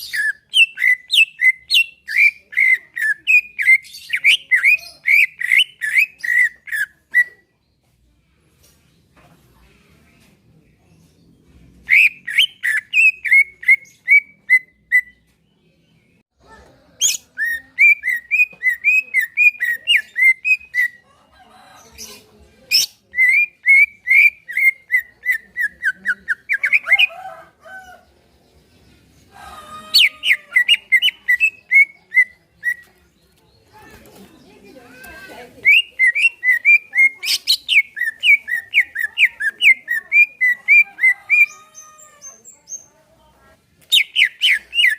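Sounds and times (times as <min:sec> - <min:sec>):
bird singing whistled notes: 0:43.9 - 0:44.9.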